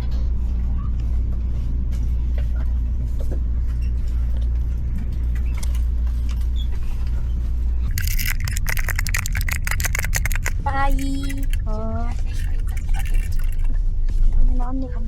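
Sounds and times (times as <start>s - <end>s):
rapid clicks and rattles: 7.9s - 13.7s.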